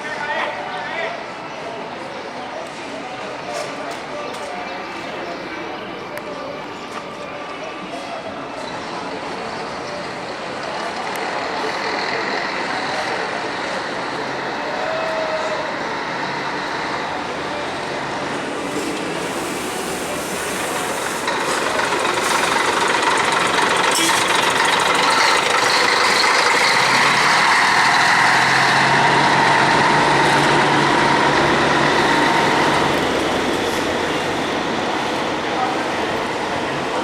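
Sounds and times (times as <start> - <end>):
road noise: 0.0 - 37.0
diesel engine running: 9.6 - 37.0.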